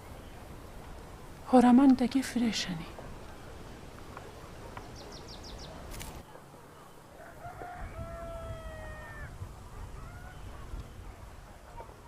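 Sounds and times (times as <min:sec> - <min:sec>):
rooster crowing: 0:07.2 - 0:09.4.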